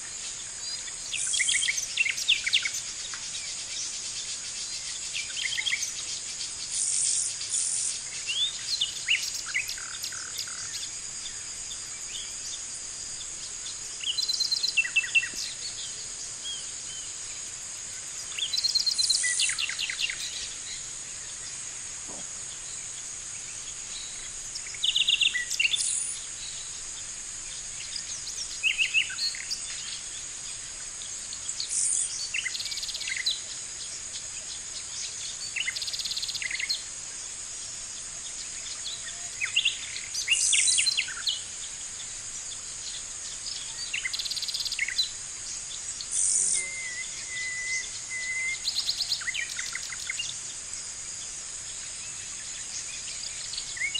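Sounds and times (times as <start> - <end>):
high-pitched hiss: 0.0 - 53.9.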